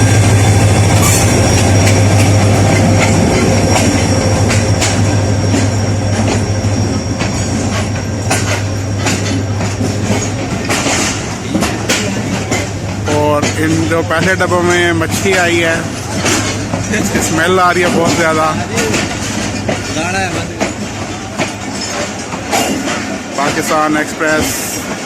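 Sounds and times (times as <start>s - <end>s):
high wheel squeal: 0.0s - 9.4s
train low rumble: 0.0s - 25.0s
train wheels clacking over rail joints: 0.0s - 25.0s.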